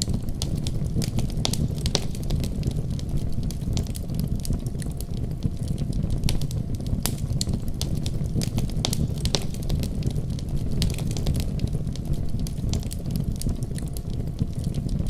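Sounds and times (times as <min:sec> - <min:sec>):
deep rumble of storm: 0:00.0 - 0:15.0
wood fire crackling and popping: 0:00.0 - 0:15.0.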